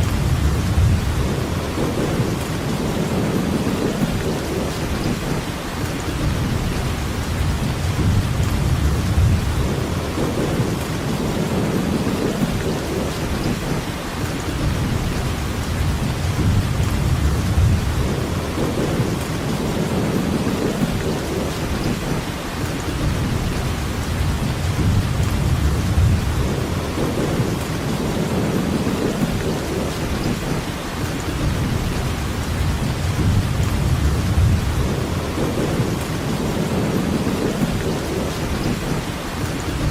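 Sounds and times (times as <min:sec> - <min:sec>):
low rumble: 0:00.0 - 0:03.9, 0:23.4 - 0:29.3, 0:31.7 - 0:37.7
steady rainfall: 0:00.0 - 0:39.9.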